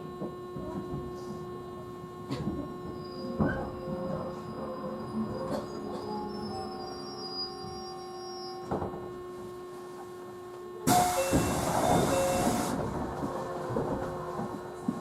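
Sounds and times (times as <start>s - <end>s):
train car low hum: 0.0s - 15.0s
loud burst of hiss: 10.9s - 12.8s.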